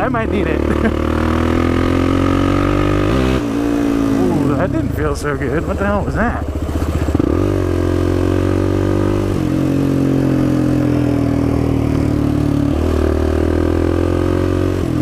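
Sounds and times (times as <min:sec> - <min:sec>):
quad engine running: 0:00.0 - 0:15.0.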